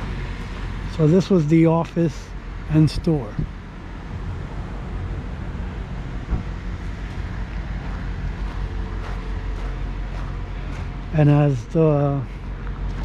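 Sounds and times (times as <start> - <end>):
wind rumble on microphone: 2.6 - 11.2.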